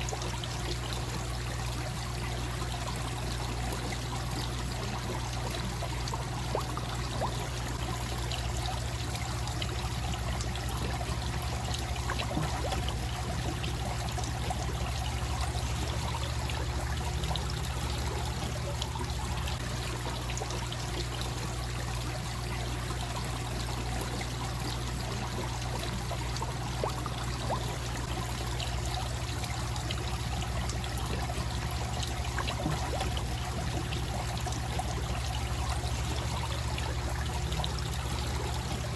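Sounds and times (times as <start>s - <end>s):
waterfall pouring into pond: 0.0s - 38.9s.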